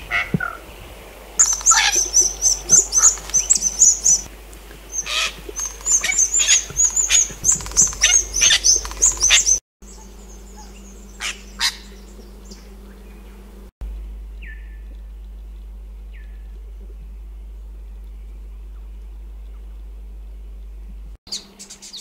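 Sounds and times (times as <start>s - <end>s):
harsh bird calls: 0.0s - 13.6s
rapid high bird chattering: 1.4s - 4.3s, 4.9s - 12.0s.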